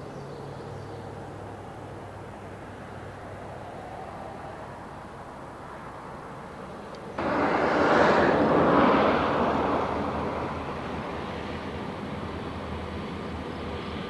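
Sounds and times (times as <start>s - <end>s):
diesel freight train rumble: 5.5s - 14.0s.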